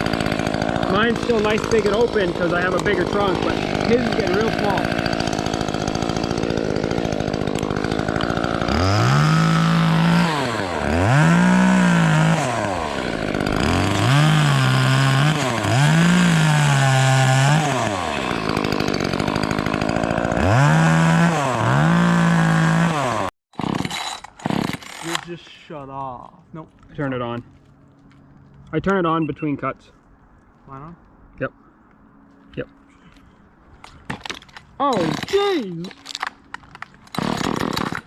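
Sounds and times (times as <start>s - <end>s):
chainsaw cutting wood: 0.0s - 25.3s, 34.2s - 38.0s.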